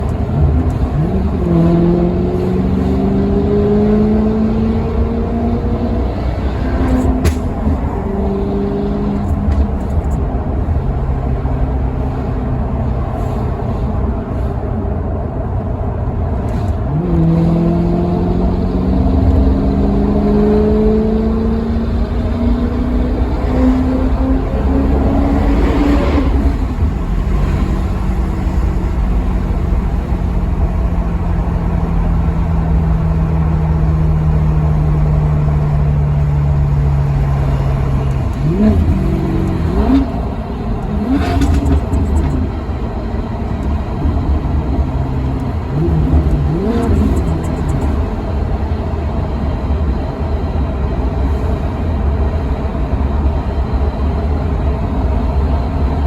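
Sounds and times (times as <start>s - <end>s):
car engine revving: 0.0s - 52.3s
low road rumble: 0.0s - 56.0s.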